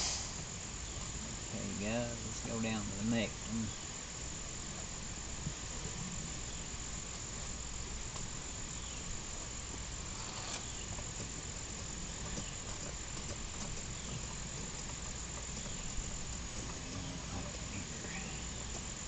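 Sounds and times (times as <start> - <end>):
insects chirring: 0.0 - 19.0
low background hiss: 0.0 - 19.0
faint ticks: 8.0 - 19.0.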